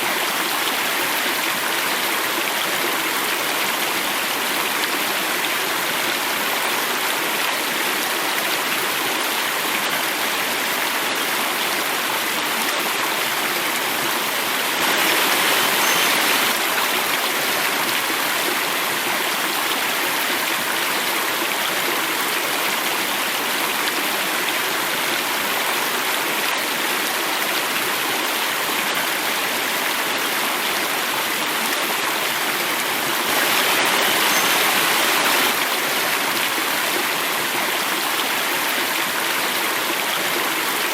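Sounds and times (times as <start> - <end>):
water flowing in a cascade: 0.0 - 40.9.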